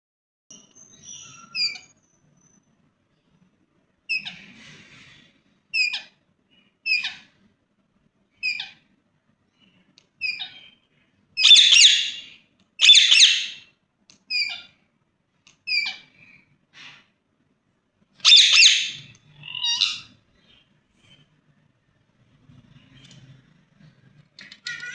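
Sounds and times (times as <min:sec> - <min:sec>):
parakeet squawking: 0:00.9 - 0:01.9, 0:04.1 - 0:04.6, 0:05.7 - 0:06.2, 0:06.8 - 0:07.3, 0:08.4 - 0:08.8, 0:10.2 - 0:10.8, 0:11.4 - 0:13.6, 0:14.3 - 0:14.8, 0:15.6 - 0:16.2, 0:18.2 - 0:20.2
parakeet screeches: 0:01.0 - 0:02.0, 0:04.1 - 0:05.2, 0:05.8 - 0:06.2, 0:06.9 - 0:07.3, 0:08.4 - 0:08.8, 0:10.2 - 0:10.8, 0:11.4 - 0:13.6, 0:14.3 - 0:14.8, 0:15.7 - 0:16.1, 0:18.2 - 0:20.2.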